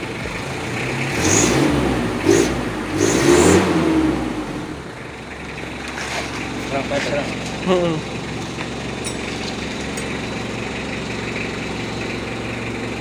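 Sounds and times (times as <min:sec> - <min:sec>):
diesel engine revving: 0:00.0 - 0:13.0.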